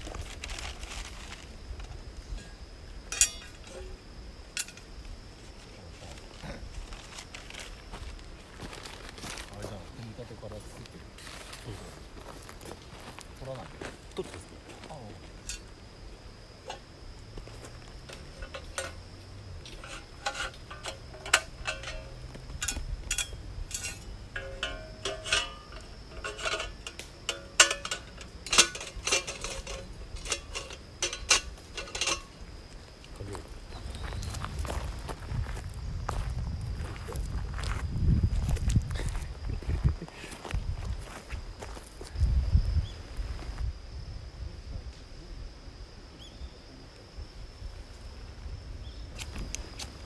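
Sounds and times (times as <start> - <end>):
metal pieces clinking: 19.7 - 32.4.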